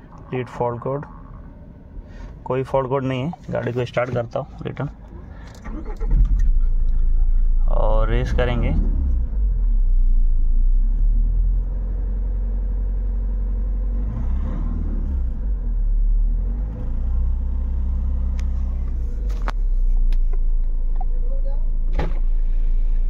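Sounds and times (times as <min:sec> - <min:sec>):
car engine revving: 0:05.6 - 0:20.7.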